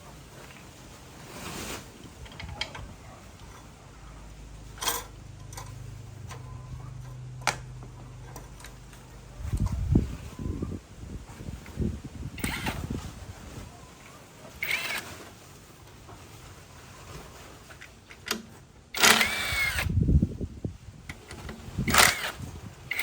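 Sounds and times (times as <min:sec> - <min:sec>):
low steady hum: 0:00.0 - 0:16.8
low rumbling: 0:02.0 - 0:14.0
sharp clicks and knocks: 0:04.8 - 0:09.8.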